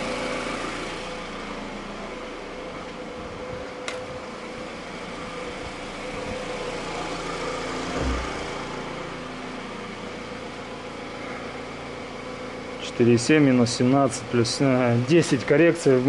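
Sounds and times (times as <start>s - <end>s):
car engine idling: 0.0s - 16.0s
brief low thump: 7.9s - 8.4s.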